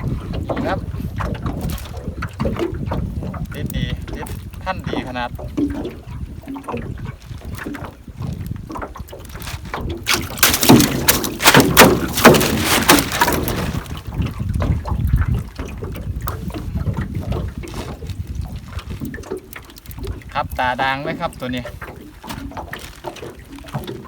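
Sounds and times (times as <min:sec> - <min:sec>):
water splashing around boat: 0:00.0 - 0:24.0.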